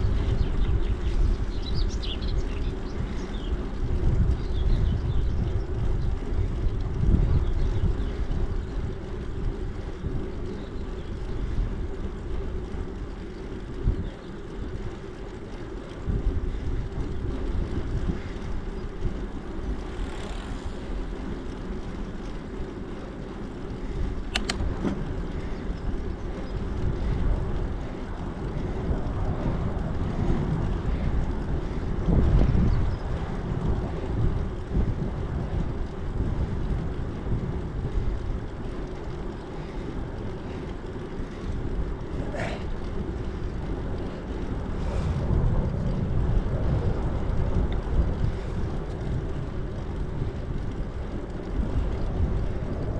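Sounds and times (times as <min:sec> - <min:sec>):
wind rumble on microphone: 0:00.0 - 0:52.9
sharp click: 0:24.3 - 0:24.6.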